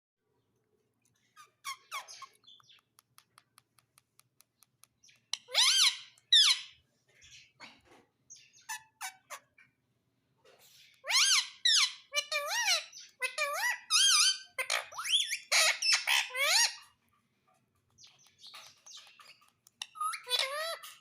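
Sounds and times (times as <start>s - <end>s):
parrot chirping: 1.2s - 3.8s, 4.5s - 7.6s, 8.3s - 9.8s, 10.6s - 17.0s, 17.8s - 21.0s
parrot squawking: 1.4s - 2.5s, 5.3s - 6.8s, 8.4s - 9.7s, 10.8s - 16.9s, 18.3s - 21.0s.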